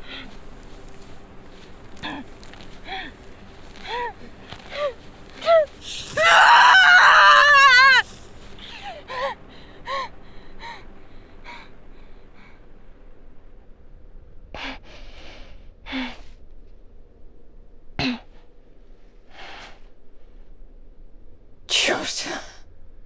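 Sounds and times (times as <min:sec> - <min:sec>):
woman crying out: 0:05.8 - 0:08.5
woman gasping breaths: 0:07.8 - 0:08.8.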